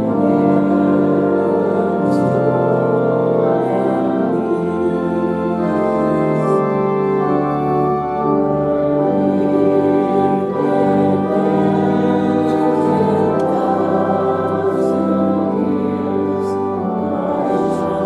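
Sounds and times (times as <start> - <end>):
organ chords: 0.0 - 18.0
voices singing a hymn: 0.0 - 18.0.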